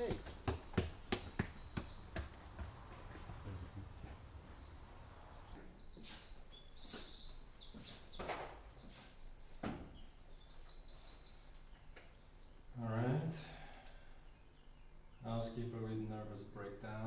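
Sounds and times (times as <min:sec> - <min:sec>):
soft knocks: 0:00.0 - 0:04.5
birds chirping: 0:00.0 - 0:17.0.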